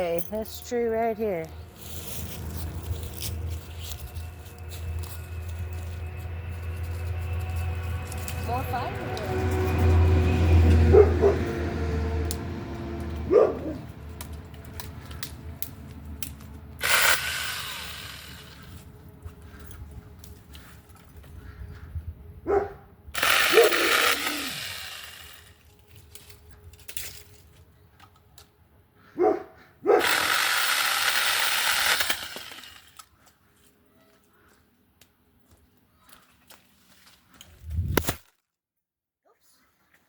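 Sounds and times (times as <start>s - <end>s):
chainsaw cutting branches: 16.3s - 18.9s, 23.2s - 26.2s, 30.0s - 33.1s.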